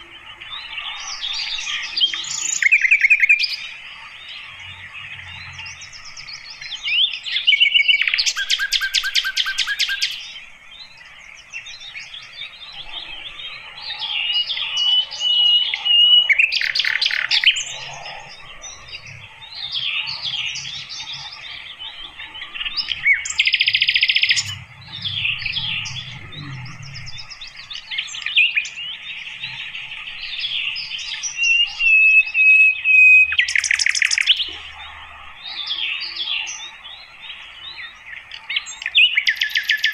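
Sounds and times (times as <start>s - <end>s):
bird twittering song: 0.0s - 39.9s
bird fast trills: 12.1s - 34.4s.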